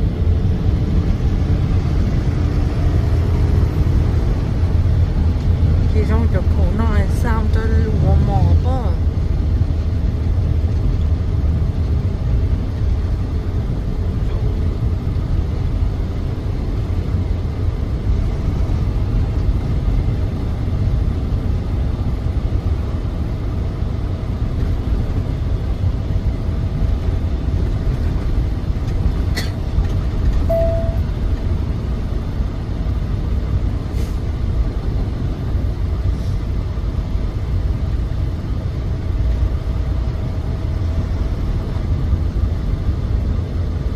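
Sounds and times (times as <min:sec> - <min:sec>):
truck engine and road rumble: 0:00.0 - 0:43.9
short beep: 0:30.5 - 0:31.1.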